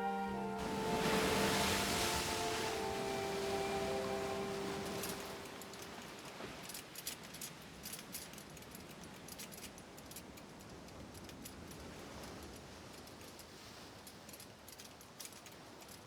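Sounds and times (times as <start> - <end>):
soft hiss: 0.0 - 6.2.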